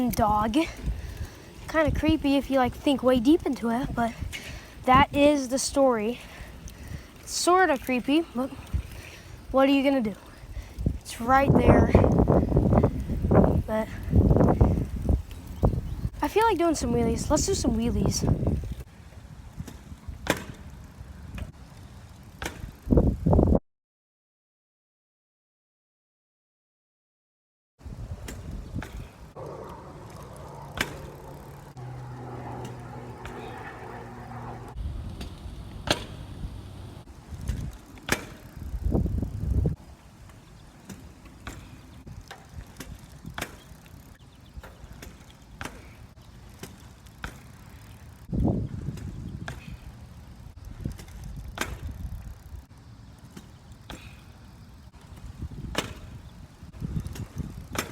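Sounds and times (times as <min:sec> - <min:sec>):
bicycle wheel clacking down: 0:00.0 - 0:18.9, 0:28.3 - 0:57.9
wind gusts on microphone: 0:00.0 - 0:21.6, 0:22.6 - 0:23.6, 0:27.8 - 0:39.8, 0:48.1 - 0:52.7, 0:55.1 - 0:57.9
low hum: 0:29.3 - 0:37.1.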